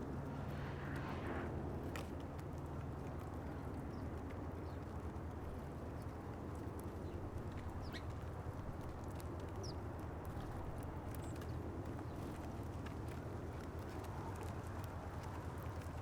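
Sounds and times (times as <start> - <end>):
low background rumble: 0.0 - 4.0.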